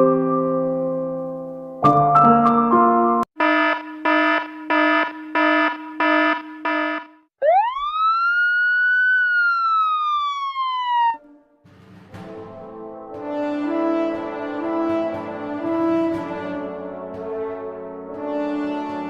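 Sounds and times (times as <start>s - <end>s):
siren wail: 3.4s - 11.6s.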